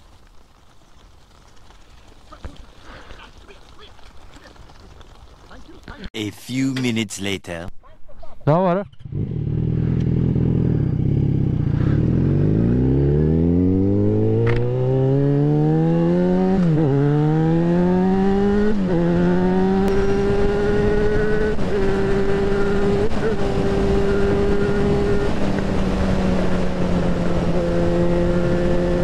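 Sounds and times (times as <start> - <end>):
motorcycle engine accelerating: 8.8 - 29.0.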